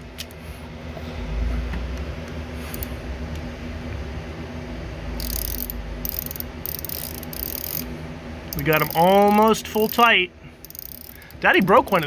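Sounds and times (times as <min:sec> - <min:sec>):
low rumble: 0:01.0 - 0:02.2
socket wrench ratchet clicking: 0:05.2 - 0:07.9, 0:08.5 - 0:12.0
handling clicks: 0:08.5 - 0:12.0.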